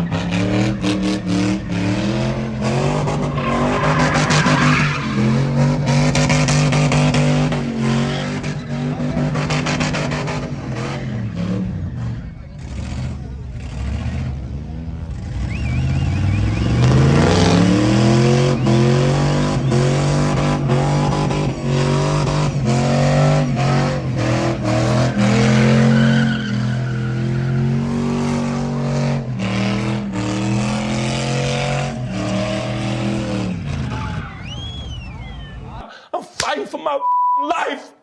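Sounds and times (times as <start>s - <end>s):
truck engine revving: 0.0s - 35.8s.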